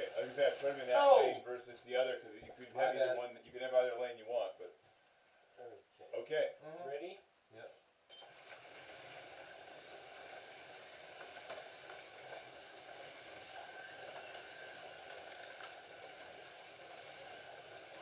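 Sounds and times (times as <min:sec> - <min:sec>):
faint clicks: 0:00.3 - 0:18.0
slot cars whirring on track: 0:08.3 - 0:18.0.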